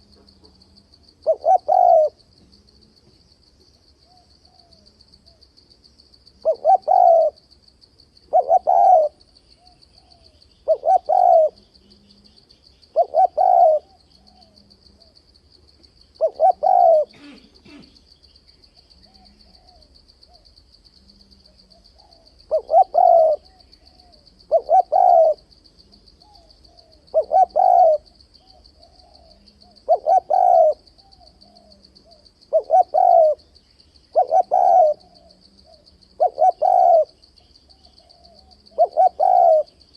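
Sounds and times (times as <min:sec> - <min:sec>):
dove cooing: 0:00.0 - 0:02.2, 0:06.4 - 0:07.4, 0:08.3 - 0:15.2, 0:16.2 - 0:18.0, 0:19.0 - 0:20.5, 0:21.1 - 0:33.5, 0:34.1 - 0:39.9.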